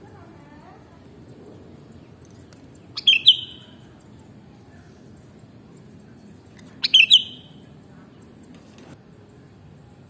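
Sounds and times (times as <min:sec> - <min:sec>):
bird calling: 0:02.8 - 0:03.9, 0:06.7 - 0:07.6.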